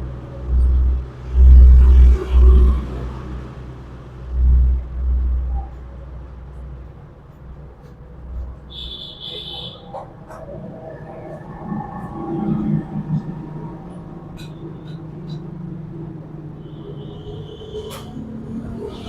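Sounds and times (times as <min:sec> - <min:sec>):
dull low thumps: 0:00.0 - 0:08.9.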